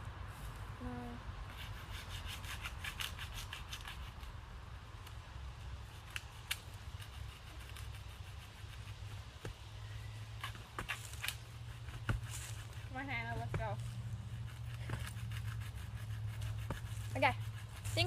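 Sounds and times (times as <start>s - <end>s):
rubbing and rustling: 10.3s - 18.0s.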